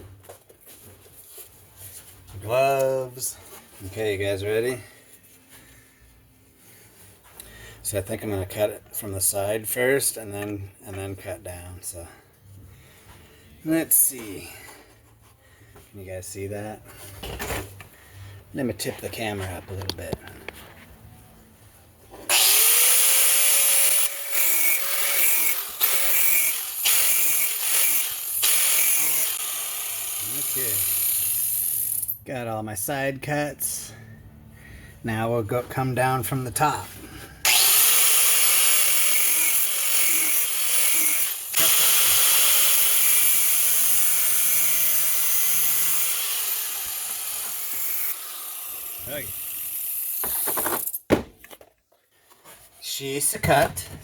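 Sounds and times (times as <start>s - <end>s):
power grinder grinding metal: 22.3s - 32.2s, 37.4s - 50.9s.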